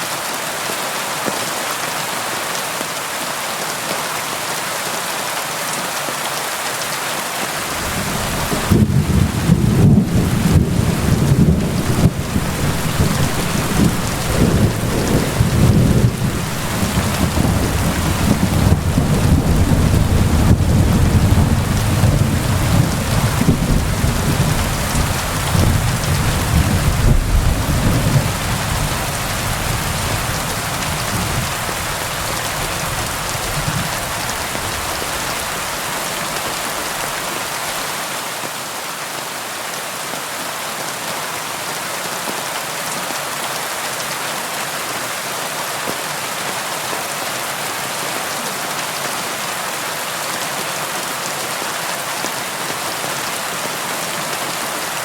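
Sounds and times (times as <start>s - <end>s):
steady rain: 0.0s - 55.0s
low rumble of thunder: 7.8s - 35.8s.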